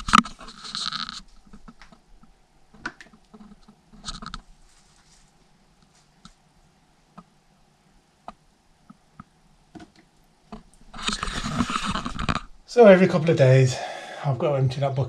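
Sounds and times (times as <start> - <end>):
rustling clattering noise: 0.0 - 6.4, 9.7 - 12.7.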